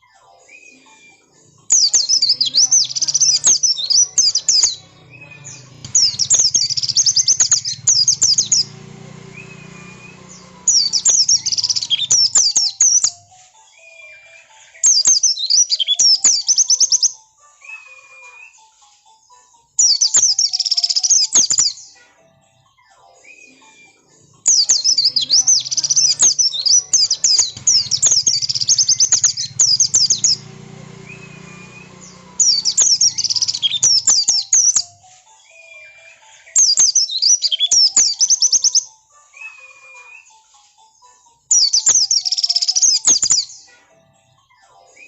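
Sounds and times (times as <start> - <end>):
bird twittering: 1.7 - 13.1, 24.5 - 34.9, 36.5 - 38.8, 41.5 - 43.7.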